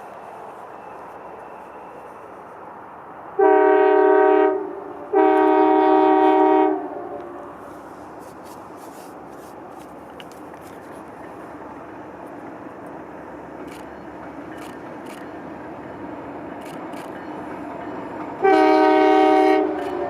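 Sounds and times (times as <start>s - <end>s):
passing train rumble: 0.0s - 20.0s
locomotive air horn blasts: 3.4s - 7.6s, 18.4s - 20.0s.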